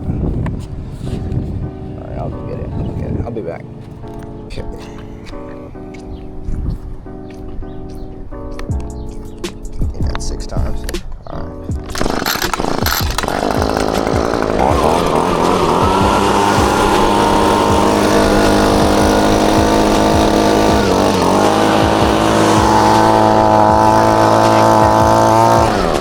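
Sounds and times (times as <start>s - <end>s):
motor running loudly: 11.9s - 26.0s.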